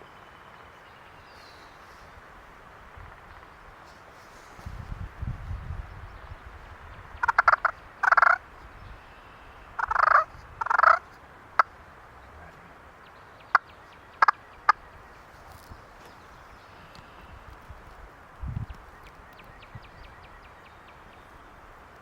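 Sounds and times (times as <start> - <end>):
turkey gobbling: 7.2 - 8.4, 9.8 - 11.0, 13.5 - 14.8.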